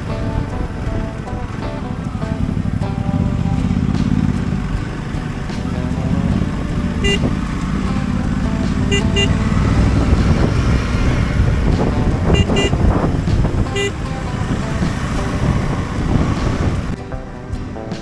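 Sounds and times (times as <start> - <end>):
motorcycle engine running: 0.0 - 17.0
wind rumble: 0.0 - 18.0
horn toots: 6.7 - 11.2, 12.2 - 13.1, 13.7 - 14.0.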